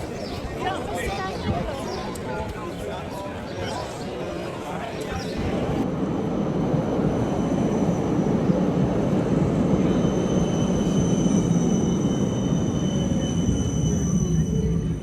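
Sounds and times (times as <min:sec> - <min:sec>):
tram rumbling past: 0:00.0 - 0:15.0
high-pitched tram whine: 0:05.6 - 0:15.0.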